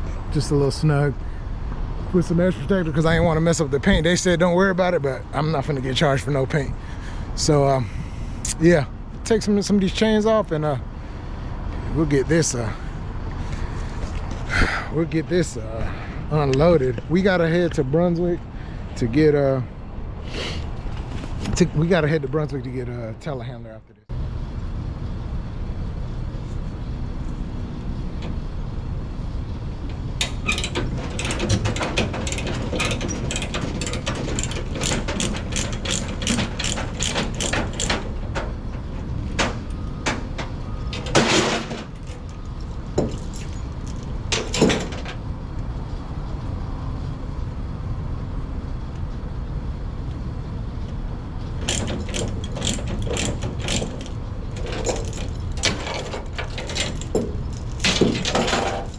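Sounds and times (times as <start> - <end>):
metal chain clanks: 30.4 - 38.2, 43.0 - 45.1, 51.6 - 58.9
rapid ratcheting clicks: 32.2 - 38.1, 51.6 - 54.7.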